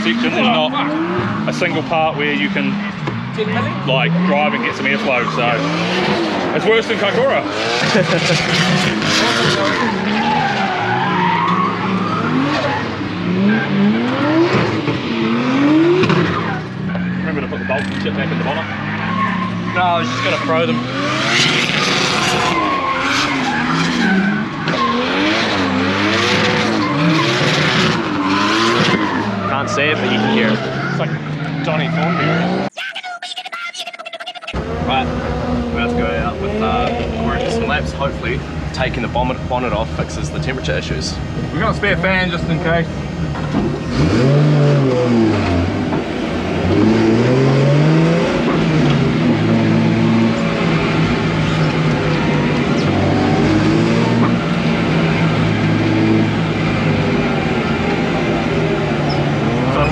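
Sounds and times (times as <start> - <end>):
car engine revving: 0.0 - 32.7, 34.5 - 59.9
tyre squeal: 7.4 - 13.8, 16.9 - 32.5, 59.0 - 59.9.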